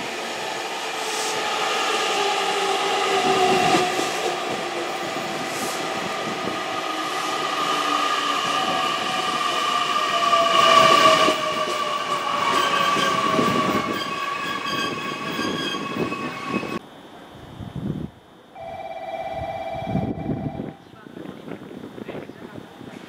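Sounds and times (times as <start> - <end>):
train wheels rumbling on rails: 0.0 - 16.8.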